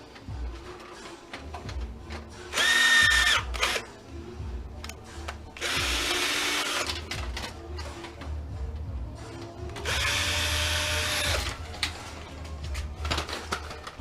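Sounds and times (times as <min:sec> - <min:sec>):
power drill whining: 0:02.5 - 0:03.8, 0:05.6 - 0:07.0, 0:09.8 - 0:11.6.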